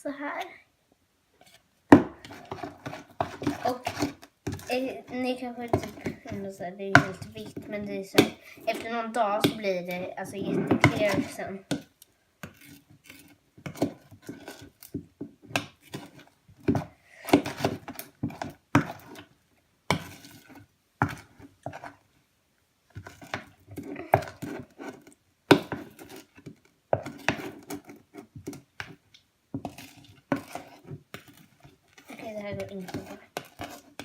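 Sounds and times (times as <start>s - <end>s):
utensil scraping a bowl: 2.2s - 14.9s, 23.0s - 29.0s, 29.6s - 34.0s.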